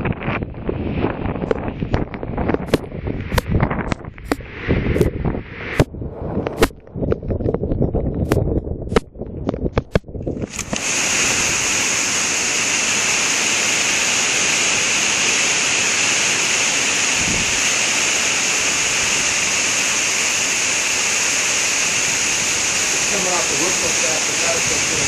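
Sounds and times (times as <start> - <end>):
heavy rain pouring: 10.4 - 25.0.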